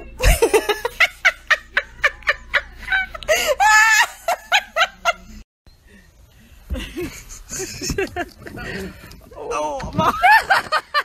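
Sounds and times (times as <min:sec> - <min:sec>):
person laughing hard: 0:00.2 - 0:05.3, 0:09.9 - 0:11.0.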